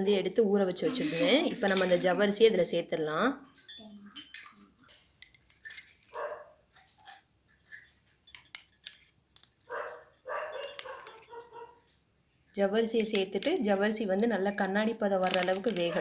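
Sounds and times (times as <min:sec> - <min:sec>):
metal utensils clinking: 0:00.9 - 0:02.9, 0:03.6 - 0:06.3, 0:07.6 - 0:11.8, 0:13.0 - 0:13.7, 0:15.2 - 0:16.0
dog barking: 0:06.1 - 0:06.6, 0:09.7 - 0:11.8.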